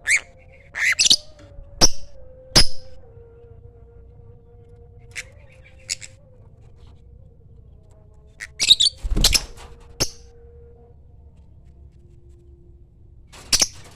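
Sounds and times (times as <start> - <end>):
faint steady hum: 0.0 - 13.9
lovebird shrill calls: 8.5 - 10.2.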